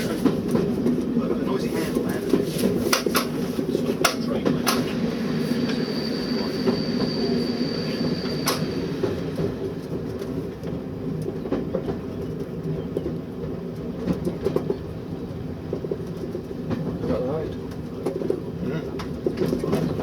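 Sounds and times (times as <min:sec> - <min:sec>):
wheels clicking over rails: 0:00.0 - 0:07.2, 0:08.0 - 0:14.9
train engine drone: 0:00.0 - 0:20.0
thin high whine: 0:05.2 - 0:09.1.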